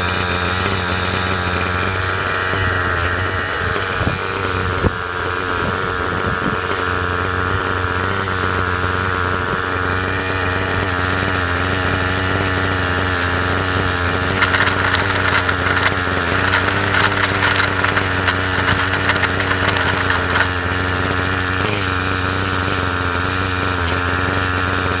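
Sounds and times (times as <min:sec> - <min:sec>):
small motor humming: 0:00.0 - 0:25.0
scratchy crackling: 0:14.2 - 0:20.7.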